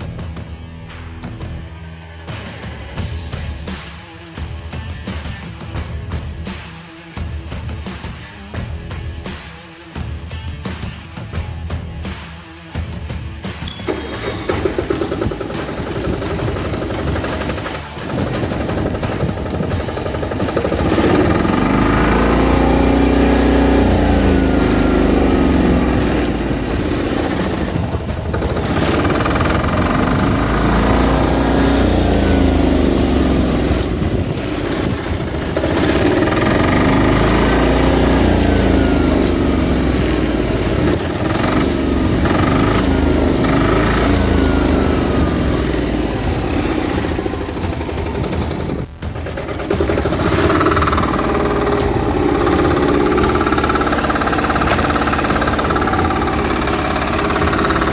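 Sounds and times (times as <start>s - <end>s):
farm machine engine running: 13.7s - 57.9s.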